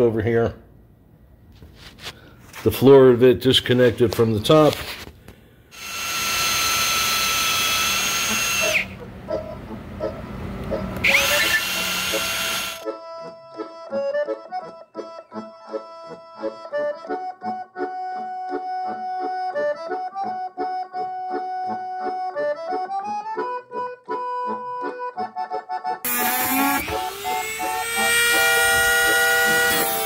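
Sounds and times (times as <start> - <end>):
power tool motor spinning up: 5.8 - 9.0, 11.0 - 12.8, 26.1 - 30.0
accordion music: 8.2 - 30.0.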